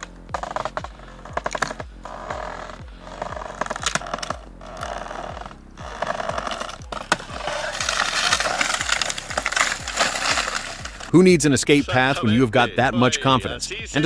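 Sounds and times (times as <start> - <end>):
electronic kick drum beat: 0.0 - 7.6.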